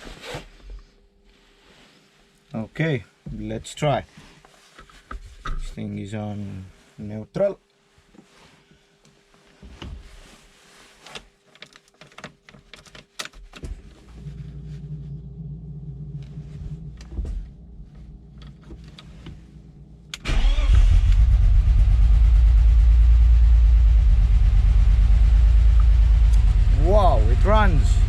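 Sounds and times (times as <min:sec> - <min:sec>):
car engine running: 0:13.9 - 0:28.0
starter motor cranking: 0:20.1 - 0:21.5.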